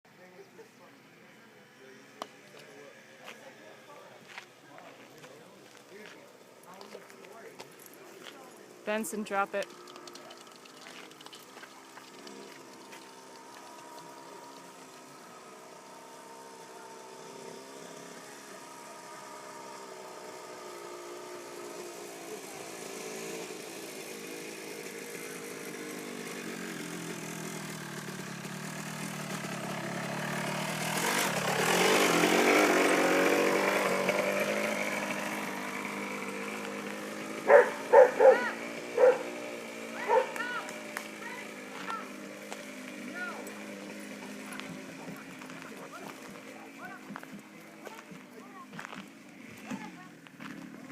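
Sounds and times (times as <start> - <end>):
dirt bike engine passing: 0.2 - 50.9
dog barking: 37.5 - 39.4, 40.0 - 40.4.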